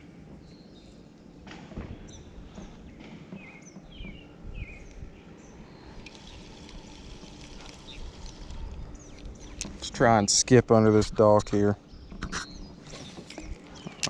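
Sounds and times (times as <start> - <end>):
birds chirping: 0.0 - 14.0
steady low rumble: 3.8 - 14.0.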